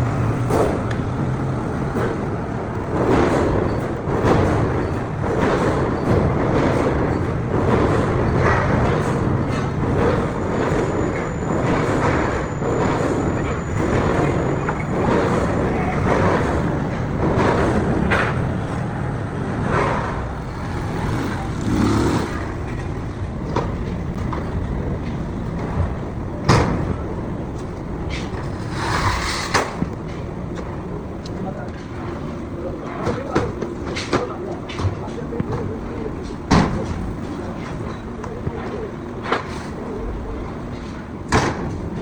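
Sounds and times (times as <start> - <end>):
workshop machinery running: 0.0 - 28.6
sharp metal knocks: 0.4 - 18.8.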